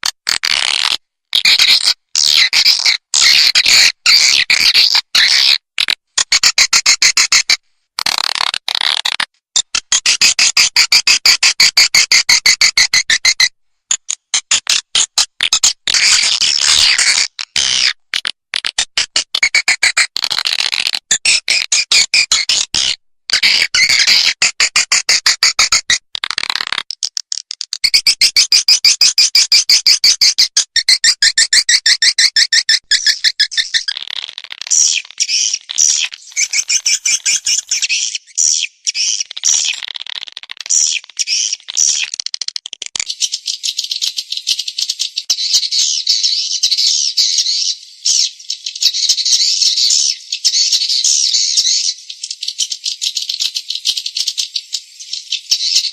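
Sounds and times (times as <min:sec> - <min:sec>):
dense bird chattering: 0:01.4 - 0:05.6, 0:09.9 - 0:18.0, 0:19.4 - 0:25.7, 0:27.4 - 0:55.9
high-pitched clicking twitters: 0:32.9 - 0:44.2.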